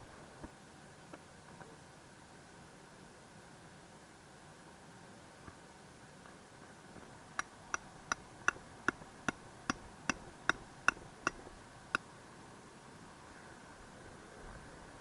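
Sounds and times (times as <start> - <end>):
hammer striking tent peg: 8.5 - 11.5.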